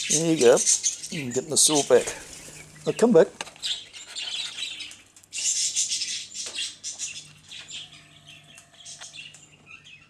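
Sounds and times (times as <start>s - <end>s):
wild birds chirping: 0.0s - 10.0s.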